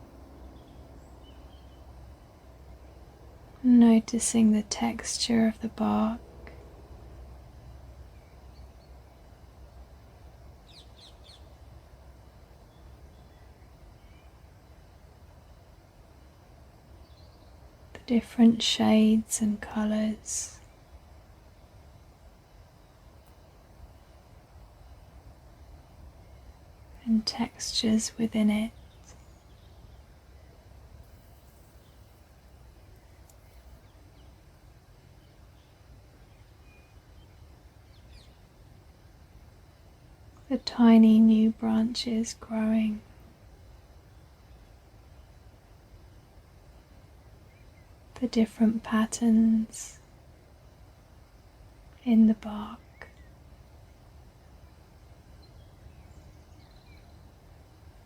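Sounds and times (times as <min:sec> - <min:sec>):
birds chirping: 0:00.0 - 0:02.1, 0:10.6 - 0:11.7, 0:16.9 - 0:38.6, 0:54.6 - 0:58.0
steady low rumble: 0:00.0 - 0:36.5.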